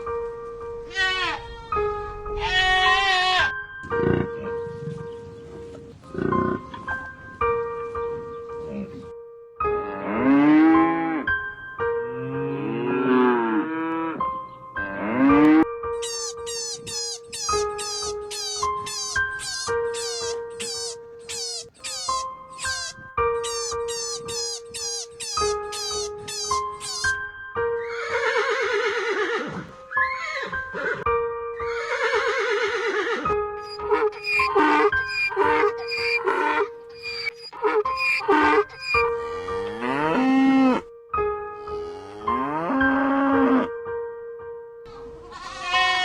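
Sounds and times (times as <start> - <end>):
background music with held notes: 0.0 - 46.0
horse whinnying: 16.0 - 27.2, 27.8 - 31.0, 31.6 - 40.8, 45.3 - 46.0
cow mooing: 33.1 - 40.9, 41.6 - 43.7.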